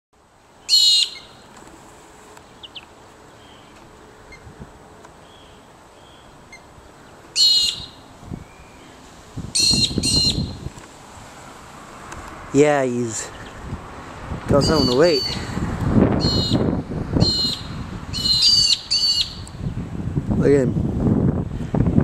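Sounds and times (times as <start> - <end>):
loud bird calls: 0.6 - 1.5, 2.4 - 4.5, 5.2 - 9.0, 9.6 - 10.6, 14.6 - 15.6, 16.2 - 19.5.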